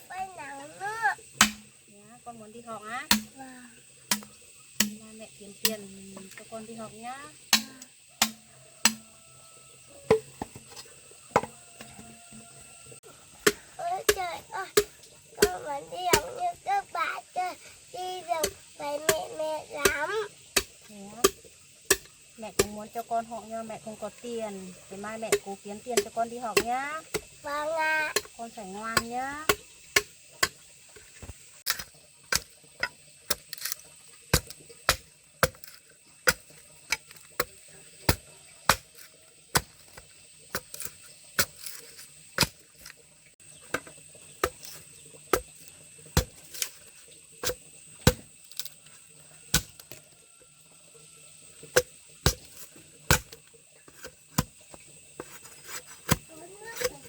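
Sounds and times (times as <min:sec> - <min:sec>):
blade chopping wood: 0:01.4 - 0:01.7, 0:03.1 - 0:03.4, 0:04.1 - 0:05.0, 0:07.5 - 0:09.1, 0:18.4 - 0:22.8, 0:28.1 - 0:30.6, 0:31.2 - 0:42.6, 0:43.7 - 0:45.5, 0:46.2 - 0:48.7, 0:49.5 - 0:50.0, 0:51.7 - 0:57.0.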